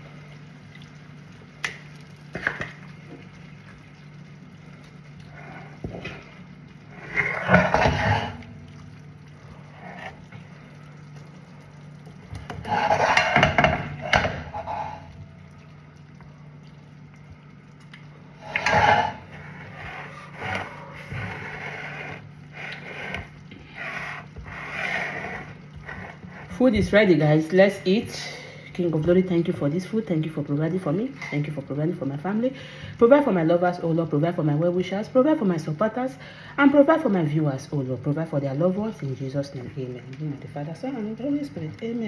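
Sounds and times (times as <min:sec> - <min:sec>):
steady low hum: 0:00.0 - 0:33.2
utensils scraping and knocking dishes: 0:07.0 - 0:08.5, 0:12.4 - 0:15.2, 0:18.4 - 0:26.9.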